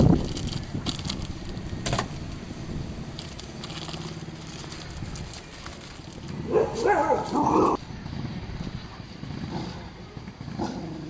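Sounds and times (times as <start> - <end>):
dog barking: 6.5 - 7.8.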